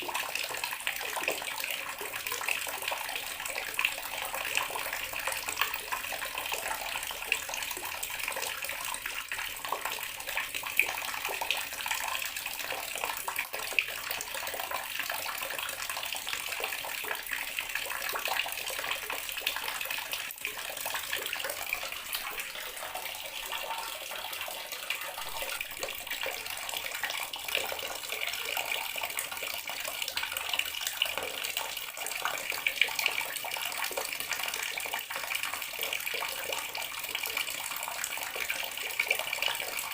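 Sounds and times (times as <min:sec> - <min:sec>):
water tap running: 0:18.5 - 0:28.1.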